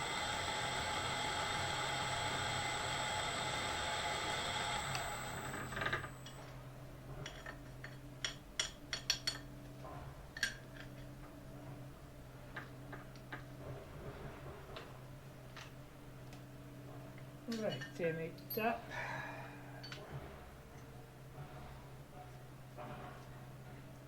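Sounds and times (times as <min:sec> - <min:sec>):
milling machine running: 0:00.0 - 0:06.4.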